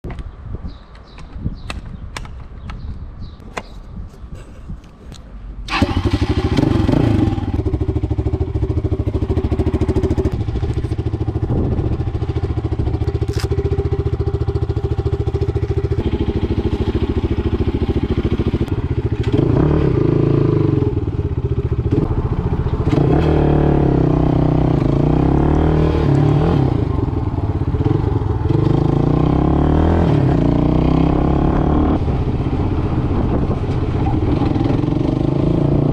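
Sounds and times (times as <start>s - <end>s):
motorcycle engine revving: 5.7s - 35.9s.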